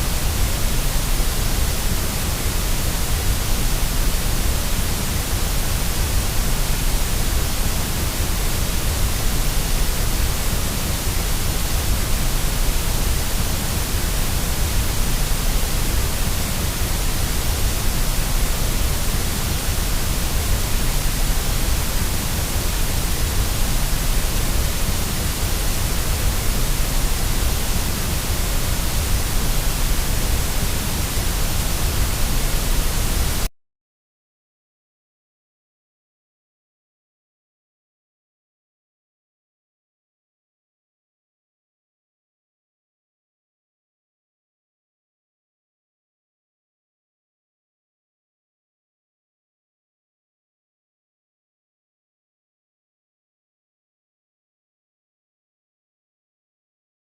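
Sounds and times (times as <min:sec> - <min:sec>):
white noise hiss: 0:00.0 - 0:33.5.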